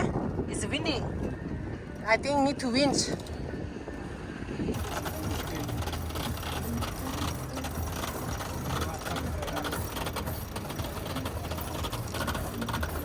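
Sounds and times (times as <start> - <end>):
winch pawls clicking: 4.8 - 13.0.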